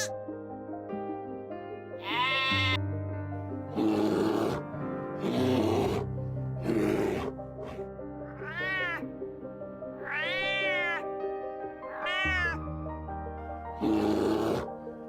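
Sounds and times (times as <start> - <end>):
background music: 0.0 - 15.0
cat meowing: 2.0 - 2.8, 8.3 - 9.1, 10.0 - 11.0, 11.8 - 12.6
rough noisy animal sound: 3.7 - 9.0, 13.8 - 14.7.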